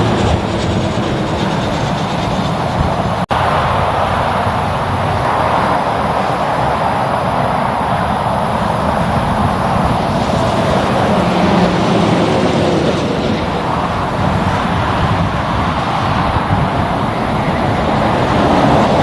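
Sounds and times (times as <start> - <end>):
highway traffic noise: 0.0 - 19.0
low engine drone: 0.0 - 19.0.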